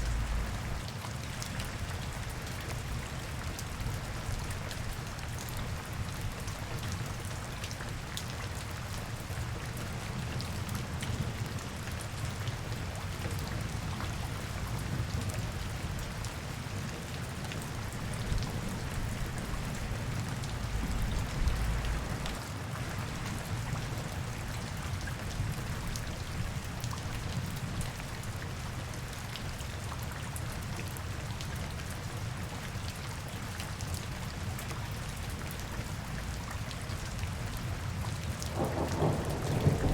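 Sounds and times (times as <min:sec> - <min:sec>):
raindrops ticking: 0:00.0 - 0:00.8
rain falling: 0:00.0 - 0:39.9.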